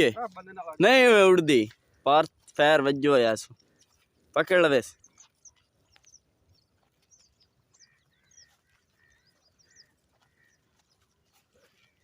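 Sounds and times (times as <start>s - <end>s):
faint ducks calling: 3.4s - 12.0s.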